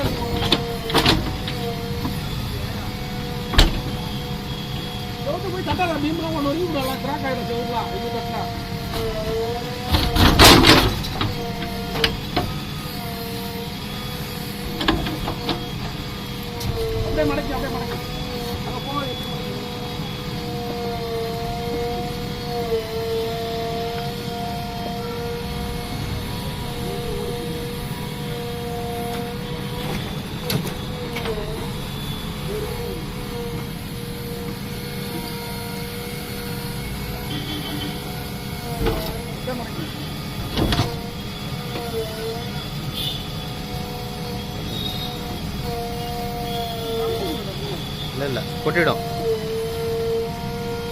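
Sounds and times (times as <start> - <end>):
engine rumbling: 0.0 - 50.9
hydraulics whining: 0.0 - 50.9.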